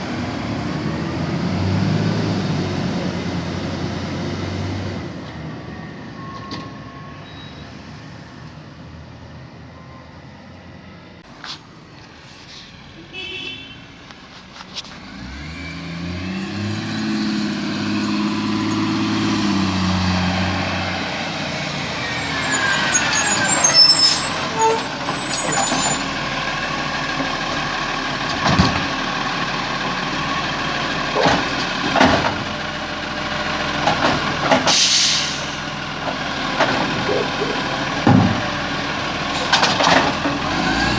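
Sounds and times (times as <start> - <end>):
garbage truck diesel engine: 0.0 - 7.2, 14.2 - 40.9
air brakes hissing: 21.0 - 26.2, 34.6 - 35.8.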